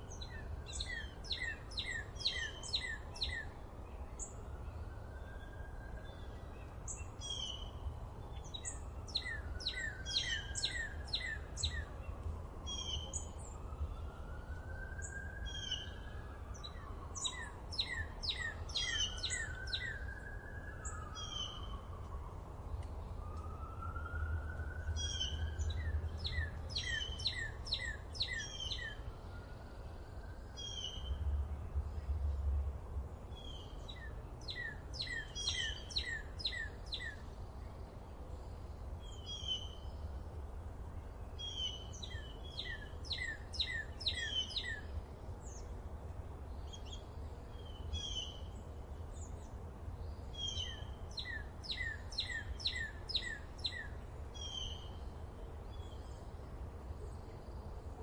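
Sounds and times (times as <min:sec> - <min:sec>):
birds chirping in bursts: 0:15.0 - 0:20.0, 0:25.0 - 0:29.0, 0:33.4 - 0:37.2, 0:50.0 - 0:55.2.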